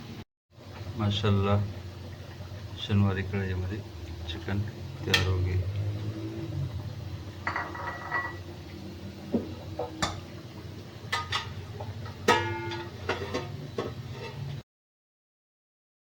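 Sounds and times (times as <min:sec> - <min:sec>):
metal utensils clinking: 0:07.4 - 0:08.4, 0:11.1 - 0:14.4.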